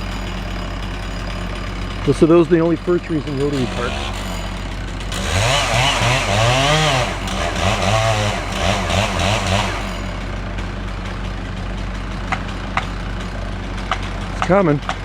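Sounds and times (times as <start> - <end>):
chainsaw cutting wood: 0.0 - 15.0
low engine hum: 0.0 - 15.0.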